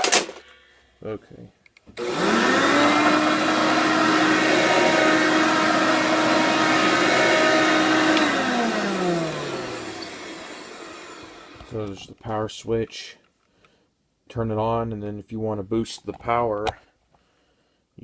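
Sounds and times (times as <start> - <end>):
vacuum cleaner motor whining: 2.0 - 11.8.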